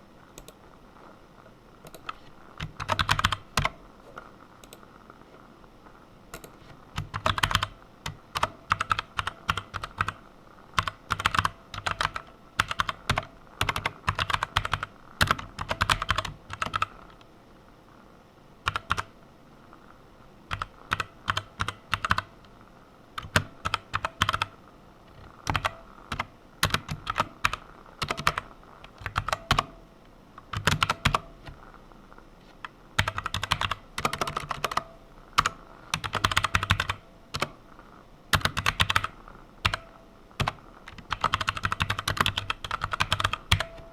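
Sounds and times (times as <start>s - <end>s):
typing on a keyboard: 1.9s - 3.8s, 6.3s - 10.2s, 10.8s - 16.9s, 18.7s - 19.1s, 20.5s - 22.3s, 23.2s - 24.5s, 25.1s - 29.7s, 30.5s - 31.3s, 33.0s - 37.6s, 38.3s - 43.8s.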